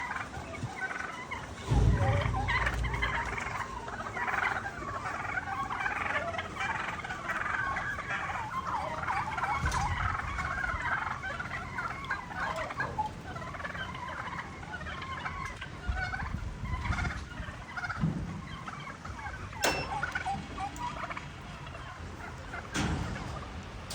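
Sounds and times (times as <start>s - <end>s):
low rumble: 1.6s - 4.9s.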